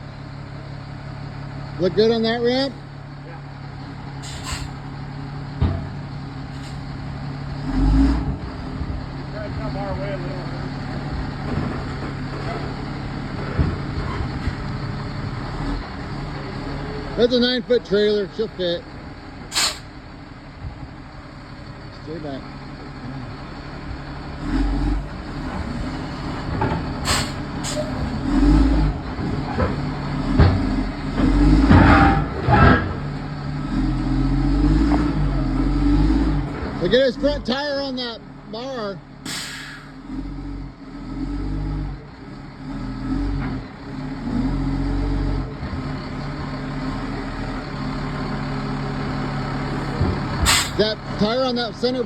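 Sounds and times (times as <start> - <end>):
diesel truck engine: 0.0 - 52.0
short hisses: 4.2 - 4.8, 19.5 - 19.9, 27.0 - 28.0, 39.2 - 40.0, 50.4 - 50.8.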